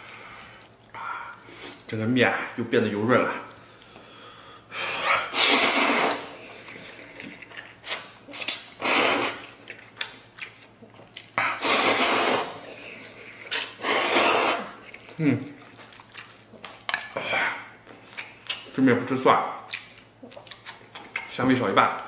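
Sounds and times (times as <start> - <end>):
noodles being slurped: 5.0 - 16.4
wet chewing clicks: 6.6 - 12.0, 19.6 - 22.0.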